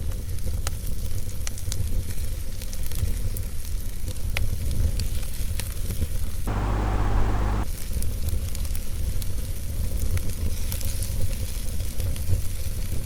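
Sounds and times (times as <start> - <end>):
loud hiss: 6.5 - 7.6.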